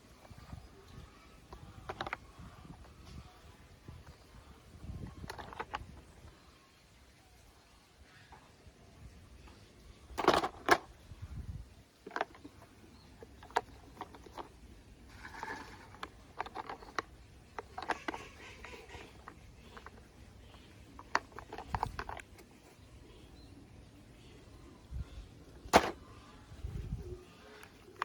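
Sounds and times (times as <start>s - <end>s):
objects clicking and knocking: 0.2s - 3.2s, 4.9s - 6.2s, 10.1s - 10.9s, 12.0s - 22.8s, 25.6s - 26.1s.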